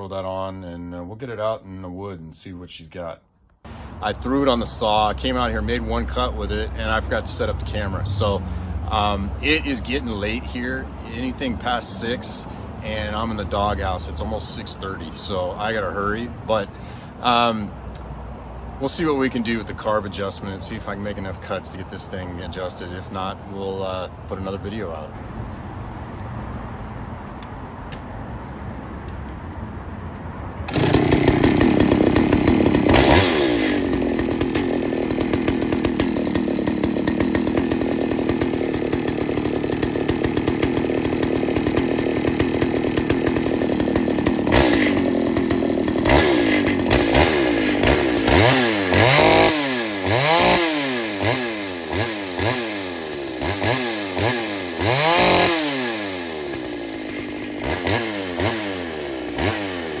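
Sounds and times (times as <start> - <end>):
chainsaw revving: 3.7 - 16.8, 30.7 - 60.0.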